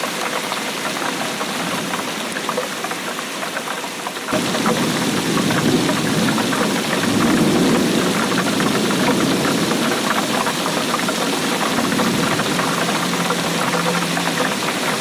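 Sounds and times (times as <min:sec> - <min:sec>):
heavy rain patter: 0:00.0 - 0:15.0.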